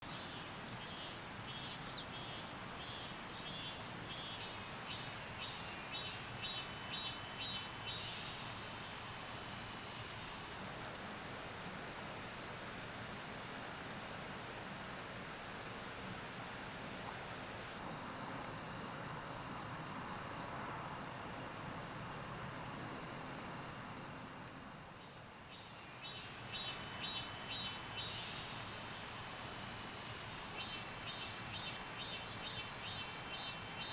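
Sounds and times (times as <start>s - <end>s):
insects calling in pulses: 10.6s - 25.6s
shrill insect hum: 10.6s - 28.4s.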